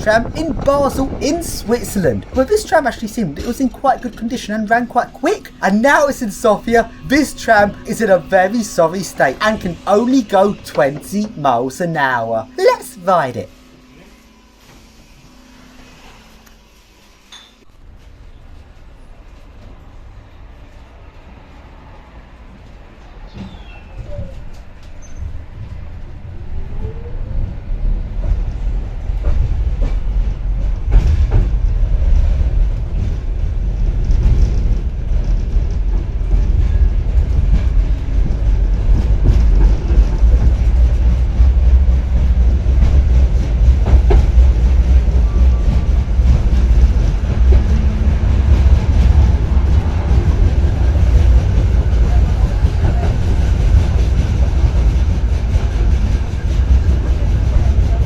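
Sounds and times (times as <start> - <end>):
rail clacks: 0.0 - 13.4, 28.3 - 58.0
tram rumbling: 0.0 - 13.5, 17.8 - 58.0.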